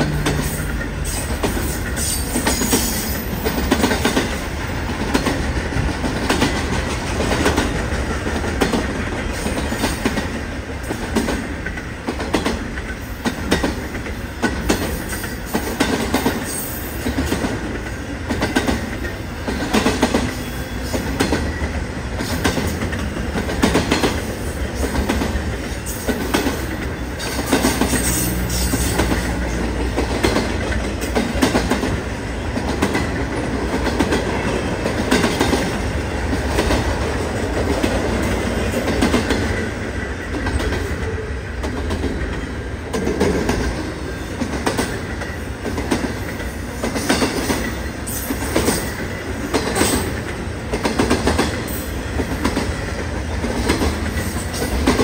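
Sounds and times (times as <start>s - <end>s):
freight train rumbling past: 0.0s - 55.0s
wheels clacking over rail joints: 0.0s - 55.0s.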